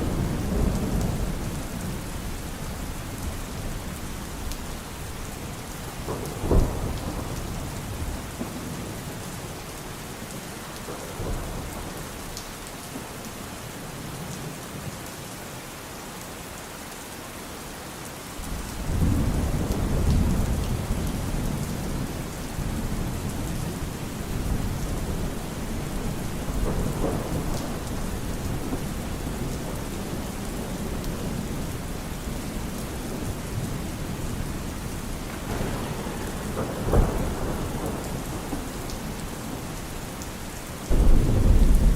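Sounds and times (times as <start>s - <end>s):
thunder rumbling: 0.0s - 9.5s, 18.4s - 41.9s
steady rain falling: 0.0s - 41.9s.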